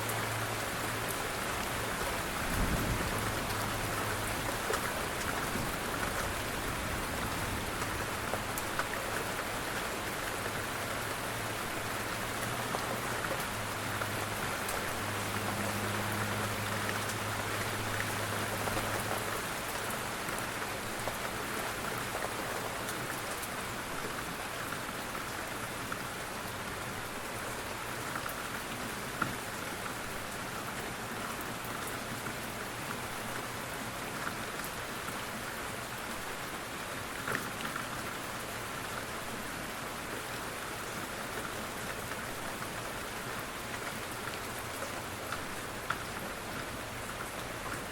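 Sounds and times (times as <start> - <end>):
steady rain falling: 0.0 - 47.9
raindrop ticks: 43.6 - 47.9.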